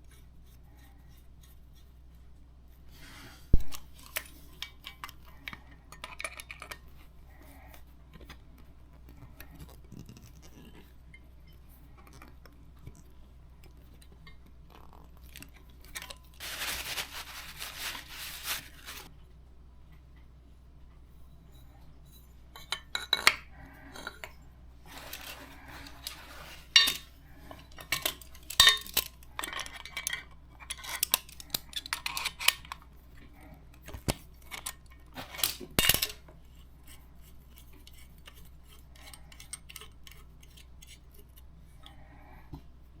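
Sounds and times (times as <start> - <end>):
metal tools and pipe fittings clinking: 25.0 - 32.8.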